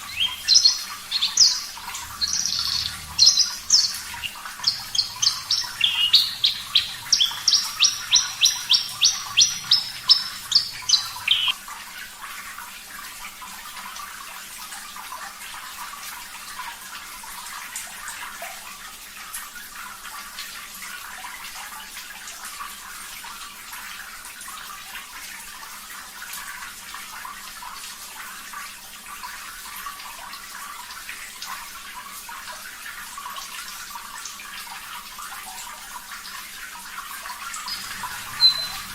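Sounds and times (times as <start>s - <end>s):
bird singing sharp repeated notes: 0.0s - 11.6s, 37.6s - 38.9s
running water: 0.0s - 38.9s.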